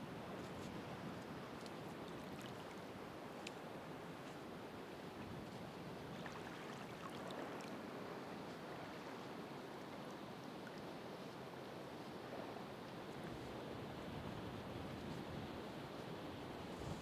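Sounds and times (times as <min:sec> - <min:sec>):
ocean waves washing on shore: 0:00.1 - 0:17.0
faint ticks: 0:03.4 - 0:03.6.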